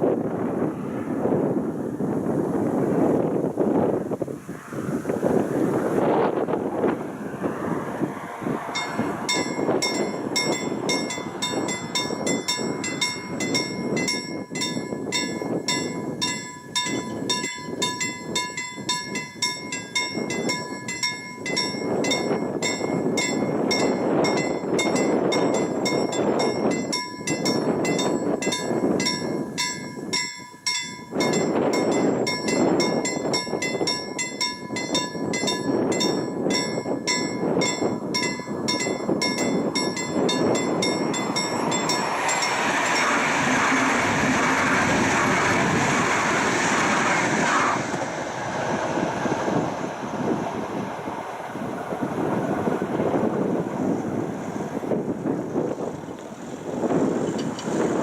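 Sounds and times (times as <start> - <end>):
passing train: 0.0 - 58.0
wind rushing: 0.0 - 58.0
crossing warning bell ringing: 8.6 - 46.6.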